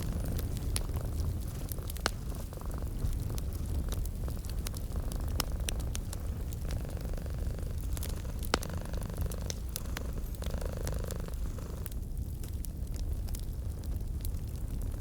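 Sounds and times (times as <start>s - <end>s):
cat purring: 0.0s - 12.0s
wood fire crackling: 0.0s - 15.0s.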